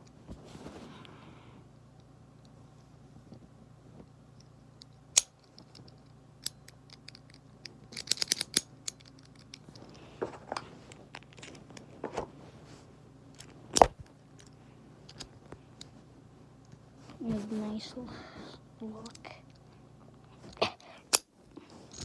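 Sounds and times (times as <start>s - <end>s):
small plastic parts clicking: 4.8s - 9.8s.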